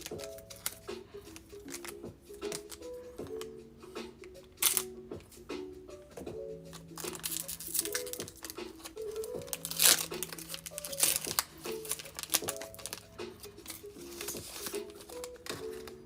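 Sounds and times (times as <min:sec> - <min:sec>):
foil wrapper crinkling and tearing: 0:00.0 - 0:02.8, 0:04.6 - 0:04.9, 0:07.0 - 0:16.0.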